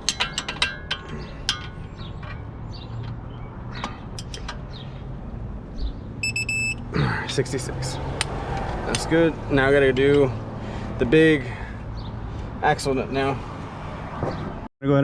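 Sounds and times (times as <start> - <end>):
high electronic beep: 6.2 - 6.8.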